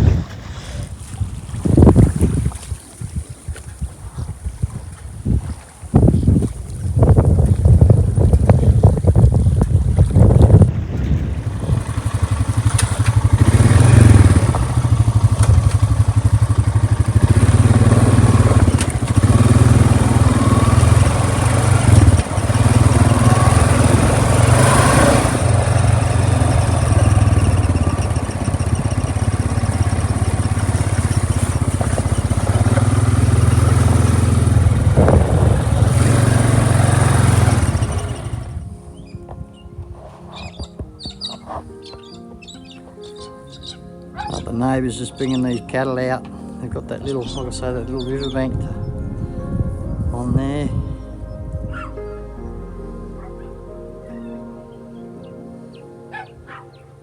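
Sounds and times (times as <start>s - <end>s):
small engine running: 11.4s - 38.6s.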